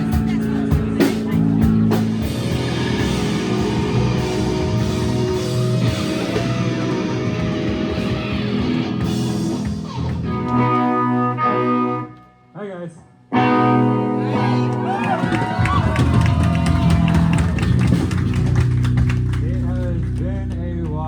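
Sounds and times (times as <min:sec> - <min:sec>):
drums: 0:00.0 - 0:11.3, 0:14.8 - 0:20.6
rock band playing: 0:00.0 - 0:12.3, 0:13.3 - 0:20.6
electric guitar: 0:00.0 - 0:12.4, 0:13.3 - 0:21.0
guitar chord ringing out: 0:02.2 - 0:09.5.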